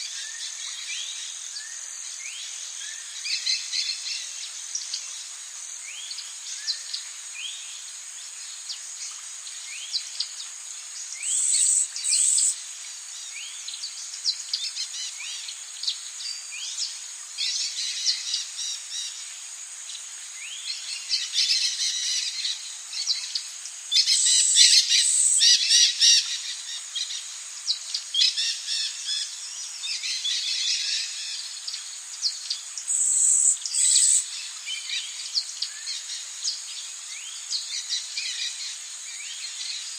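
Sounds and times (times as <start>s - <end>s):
high insect drone: 0.0s - 39.9s
birds chirping and trilling: 11.0s - 12.6s, 20.4s - 39.9s
insect buzzing bursts: 11.2s - 12.6s, 32.8s - 34.5s.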